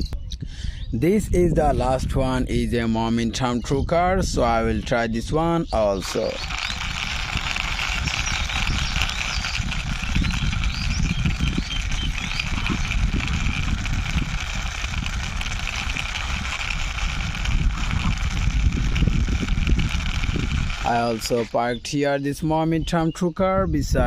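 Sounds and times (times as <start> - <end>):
toy car wheels rolling: 5.7 - 21.8.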